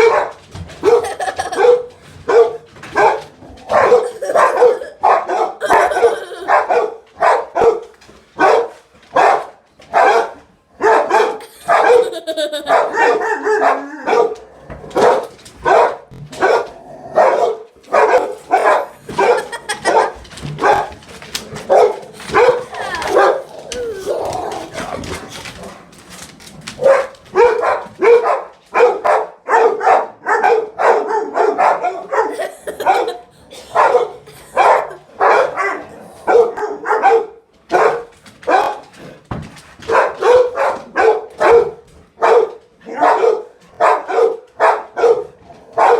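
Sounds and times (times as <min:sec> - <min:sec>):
dog barking excitedly: 0:00.0 - 0:25.9, 0:26.7 - 0:39.1, 0:39.8 - 0:45.9
dog wavering cries: 0:03.8 - 0:05.0, 0:05.6 - 0:06.6.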